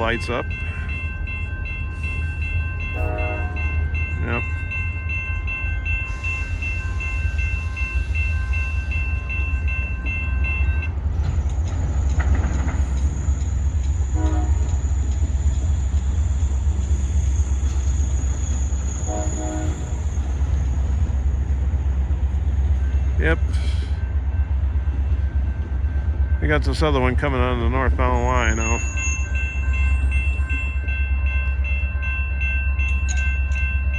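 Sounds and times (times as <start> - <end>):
diesel locomotive rumbling past: 0.0 - 33.9.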